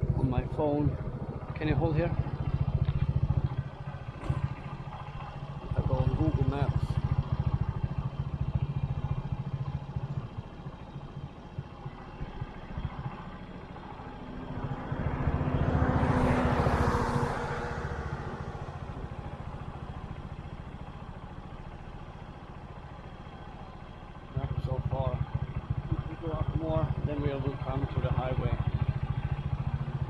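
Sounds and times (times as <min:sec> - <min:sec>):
passing vehicle: 0:00.0 - 0:08.6, 0:11.8 - 0:22.8
motorbike engine idling: 0:00.0 - 0:30.0.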